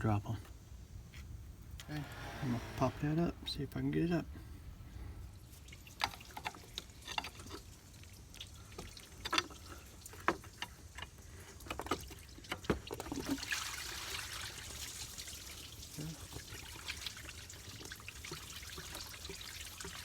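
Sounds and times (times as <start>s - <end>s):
liquid trickling: 5.4s - 20.0s.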